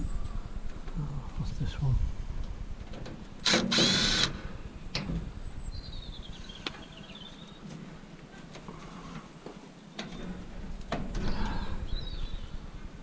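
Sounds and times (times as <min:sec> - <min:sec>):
power tool burst: 0:03.4 - 0:04.4.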